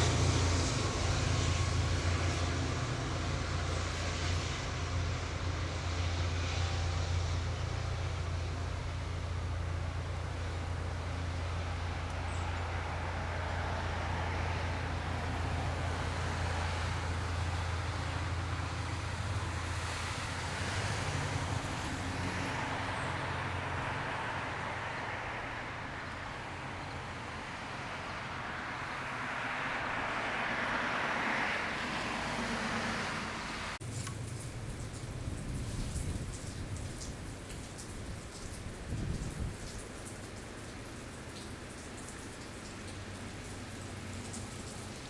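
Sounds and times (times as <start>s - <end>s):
train rushing rolling noise: 0.0s - 22.5s
diesel train drone: 0.0s - 37.5s.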